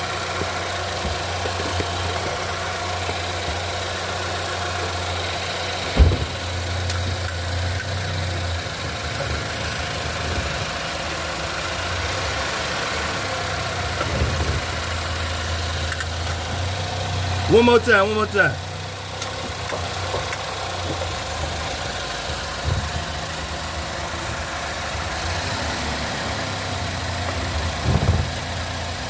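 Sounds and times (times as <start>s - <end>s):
car engine idling: 0.0s - 29.0s
heavy clunk: 5.8s - 6.6s.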